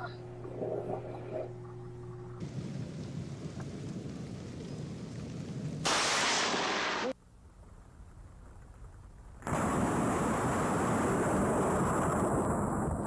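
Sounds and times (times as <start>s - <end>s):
loud thunder burst: 2.4s - 7.2s, 9.5s - 13.0s
steady rain: 2.4s - 7.2s.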